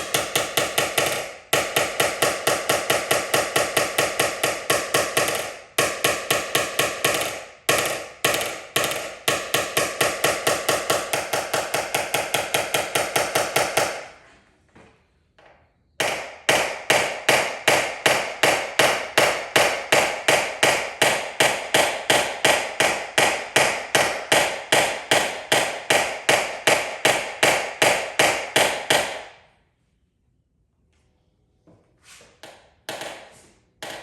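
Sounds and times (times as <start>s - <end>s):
small hammer tapping metal: 0.0s - 14.1s.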